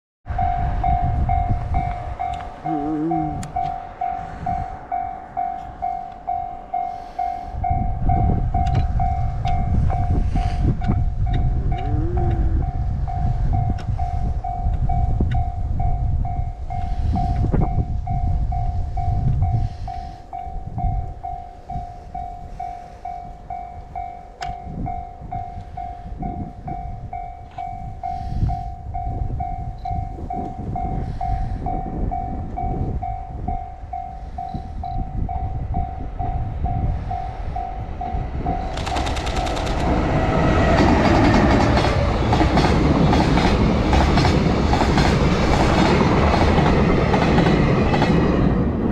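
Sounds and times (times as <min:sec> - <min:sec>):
freight train passing: 0:00.3 - 0:48.9
level crossing bell ringing: 0:00.4 - 0:08.4.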